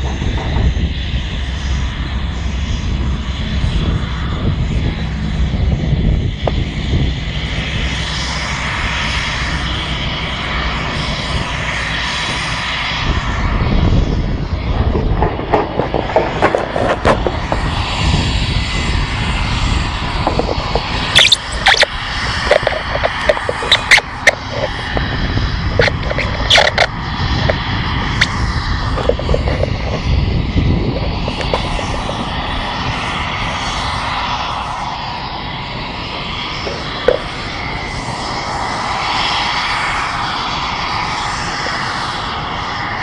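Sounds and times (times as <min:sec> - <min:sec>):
sharp knocks and crackles: 0:00.0 - 0:00.8, 0:14.7 - 0:17.8, 0:20.2 - 0:25.1, 0:25.7 - 0:30.1
turbine aircraft engine running: 0:00.0 - 0:43.0.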